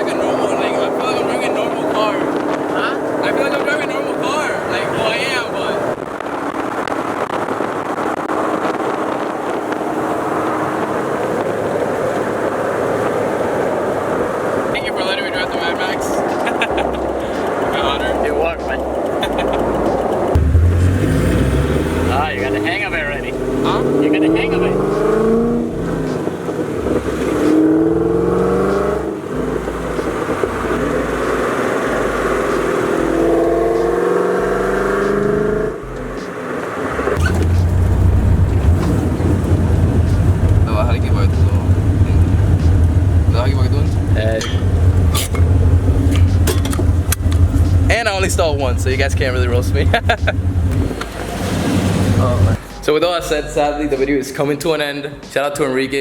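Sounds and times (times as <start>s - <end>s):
car engine and road noise: 0.0s - 56.0s
wind on microphone: 4.8s - 14.8s.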